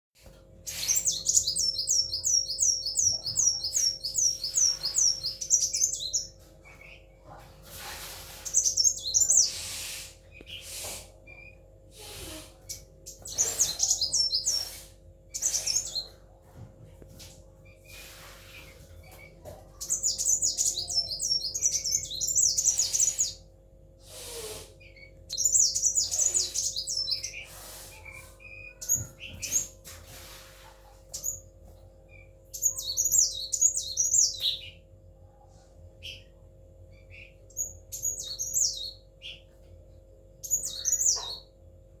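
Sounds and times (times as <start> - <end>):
sunbird twittering: 12.7 - 16.1.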